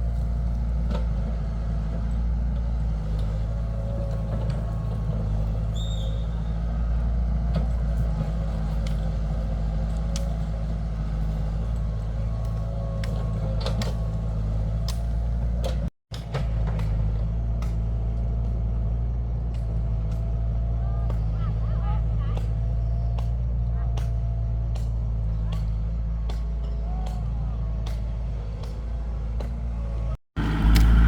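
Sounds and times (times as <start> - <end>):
heavy machine engine running: 0.0 - 31.0.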